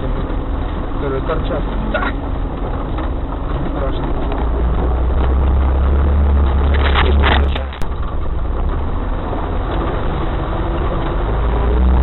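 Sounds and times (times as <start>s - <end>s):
rough vehicle rumble: 0.0s - 12.0s
vehicle engine rumbling: 0.0s - 12.0s.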